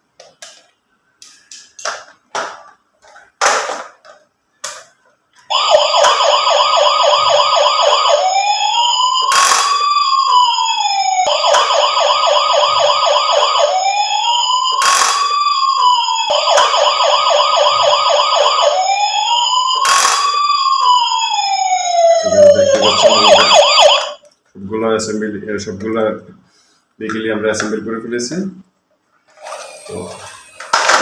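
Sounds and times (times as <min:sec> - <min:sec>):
toy electronic siren: 0:05.5 - 0:24.2.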